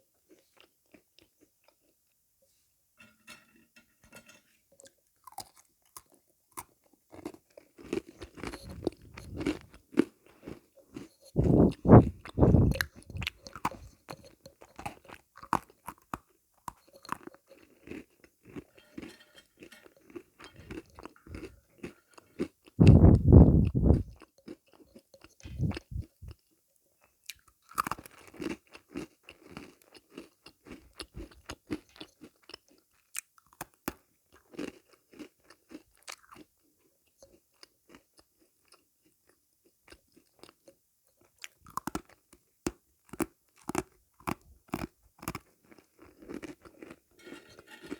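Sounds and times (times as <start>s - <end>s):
sweets being crunched and chewed: 5.2s - 18.8s, 20.2s - 24.2s, 27.3s - 36.5s, 43.0s - 47.0s.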